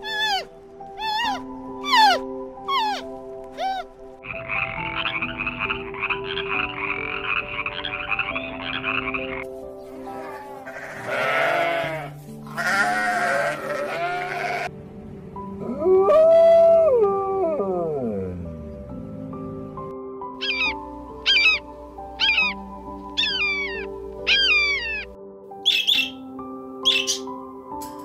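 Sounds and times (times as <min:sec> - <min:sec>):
soft background music: 0:00.0 - 0:28.0
drawn-out animal call: 0:02.8 - 0:09.4, 0:10.1 - 0:14.7, 0:20.4 - 0:26.2
rattling croak: 0:04.2 - 0:09.4
sheep bleating: 0:10.2 - 0:14.7.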